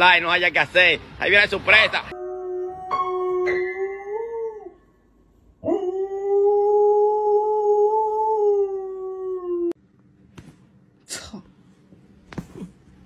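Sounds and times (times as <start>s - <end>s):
dog howling: 2.1s - 4.8s, 5.6s - 9.8s.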